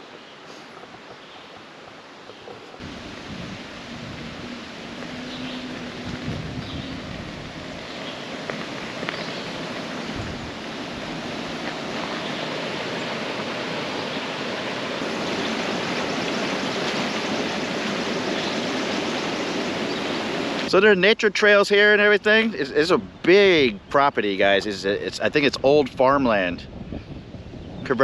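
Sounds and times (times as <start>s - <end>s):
tyre rolling on road: 0.1s - 20.6s
wind over microphone: 2.3s - 20.7s, 23.0s - 28.0s.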